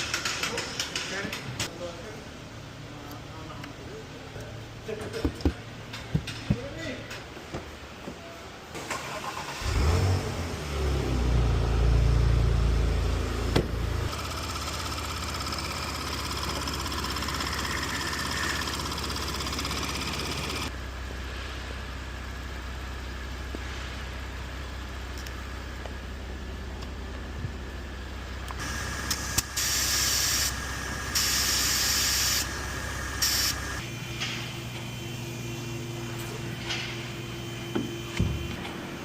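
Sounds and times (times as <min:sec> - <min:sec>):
car engine starting and idling: 0:08.7 - 0:29.6
higher-pitched sound over idle: 0:14.1 - 0:21.6, 0:28.5 - 0:34.0.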